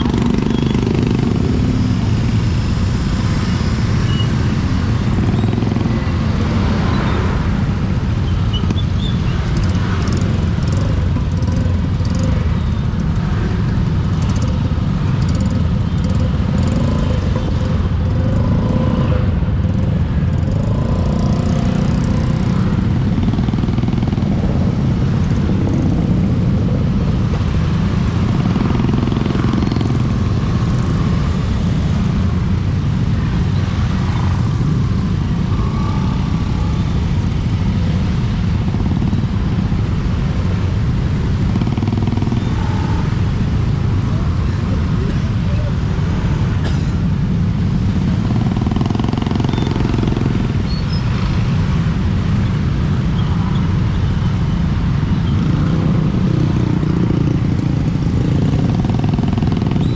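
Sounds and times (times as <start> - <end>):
motorcycle engine: 0.0 - 59.9
vehicles passing: 0.0 - 59.9
wind rumble on microphone: 0.0 - 59.9.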